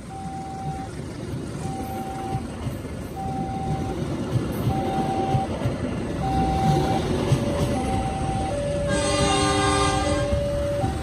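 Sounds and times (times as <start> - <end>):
train coaches rumbling past: 0.0 - 11.0
level crossing alarm tones: 0.1 - 1.0, 3.2 - 4.0, 4.7 - 5.6, 6.2 - 11.0
train wheel knocks: 3.7 - 8.1.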